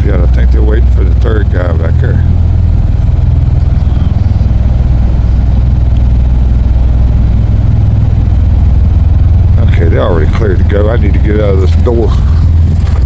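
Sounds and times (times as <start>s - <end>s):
tiltrotor aircraft idling: 0.0s - 13.0s.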